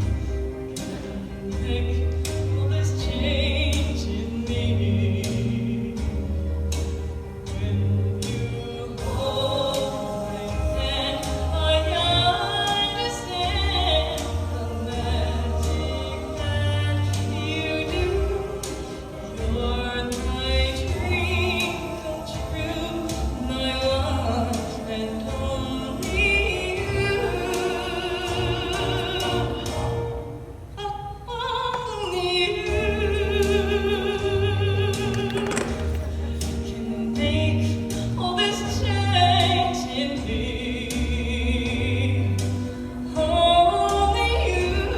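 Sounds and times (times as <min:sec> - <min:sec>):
song with singing voice: 0:00.0 - 0:44.9.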